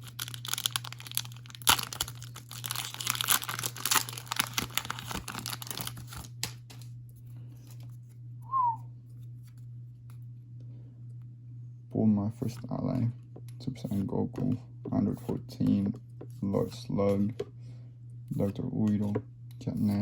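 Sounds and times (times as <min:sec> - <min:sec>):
foil wrapper crinkling and tearing: 0:00.0 - 0:06.9
short falling whistle-like note: 0:08.4 - 0:08.8.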